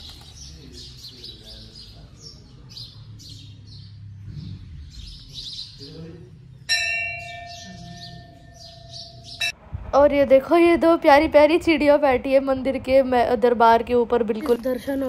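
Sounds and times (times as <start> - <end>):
small birds chirping: 0.0 - 9.5.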